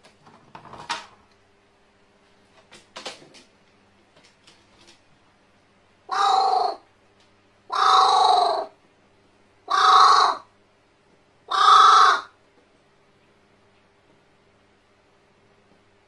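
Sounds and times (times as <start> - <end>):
crow cawing: 6.1 - 6.8, 7.7 - 8.7, 9.7 - 10.5, 11.5 - 12.4.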